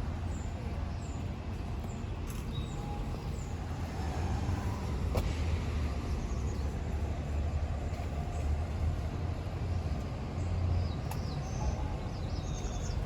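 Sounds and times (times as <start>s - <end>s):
distant city traffic rumble: 0.0s - 13.0s.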